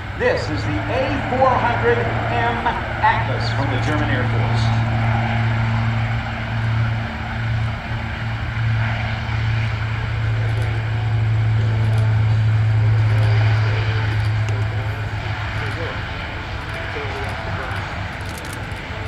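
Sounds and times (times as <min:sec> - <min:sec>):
low propeller drone: 0:00.0 - 0:19.0.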